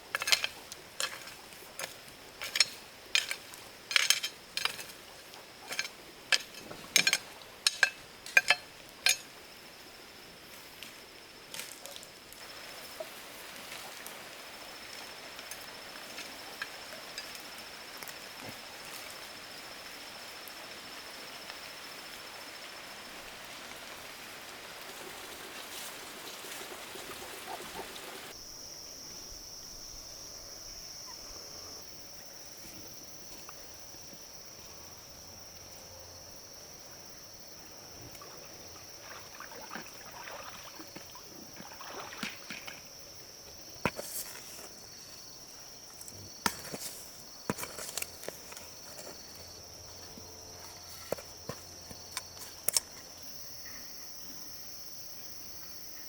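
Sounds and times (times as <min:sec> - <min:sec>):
insect drone: 0:00.0 - 0:56.0
running water: 0:18.8 - 0:28.4, 0:38.2 - 0:42.9.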